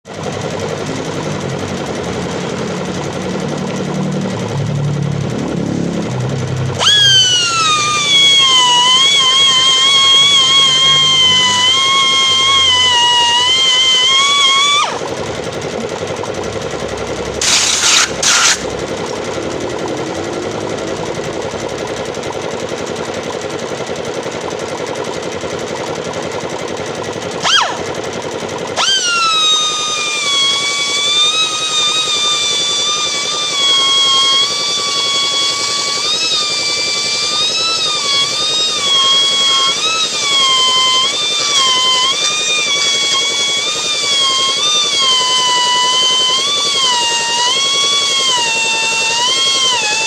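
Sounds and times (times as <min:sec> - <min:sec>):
pneumatic air grinder: 0:00.0 - 0:50.0
air hissing bursts: 0:17.4 - 0:18.8.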